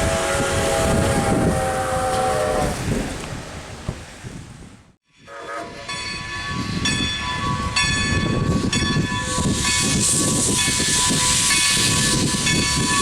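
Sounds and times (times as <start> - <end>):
steam locomotive whistle blasts: 0.0 - 2.8, 5.1 - 13.0
steam hissing: 8.3 - 13.0.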